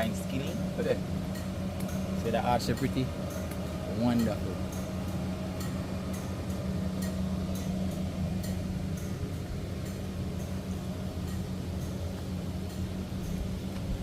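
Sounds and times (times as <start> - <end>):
low mechanical hum: 0.0 - 14.0
faint high ticks: 11.2 - 13.9.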